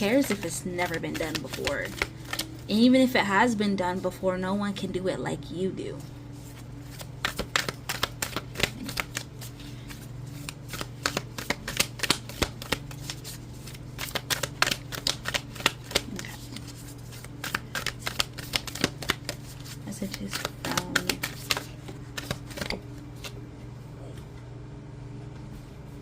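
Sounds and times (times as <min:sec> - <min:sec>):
cards being shuffled: 0:00.0 - 0:02.7, 0:06.3 - 0:23.4.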